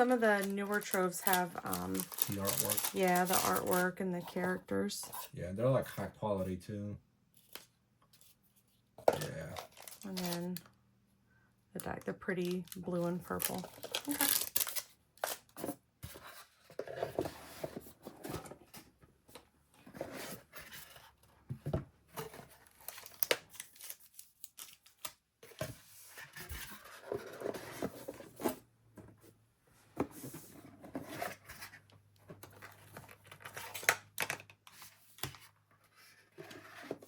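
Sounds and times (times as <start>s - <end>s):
cardboard packaging being torn: 0.0s - 3.9s, 9.3s - 10.4s, 12.4s - 15.5s.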